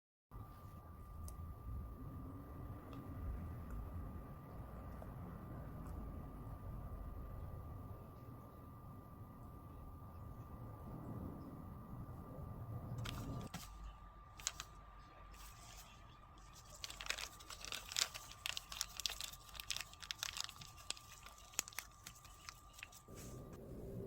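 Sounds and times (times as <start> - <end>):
cookie cracking and crunching: 15.4 - 23.1.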